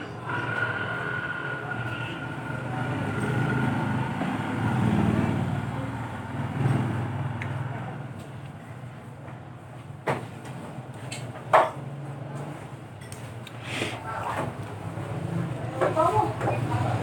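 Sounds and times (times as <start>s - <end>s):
passing vehicle engine rumble: 0.0s - 8.2s.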